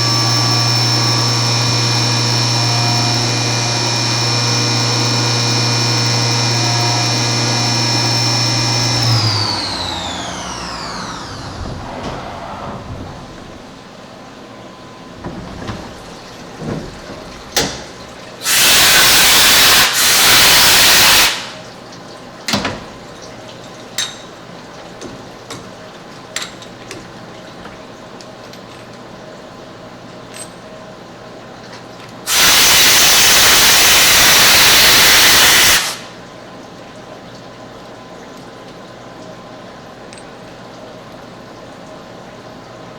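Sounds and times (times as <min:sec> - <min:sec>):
air blow gun hissing: 0:00.0 - 0:13.7, 0:18.4 - 0:21.6, 0:32.3 - 0:36.2.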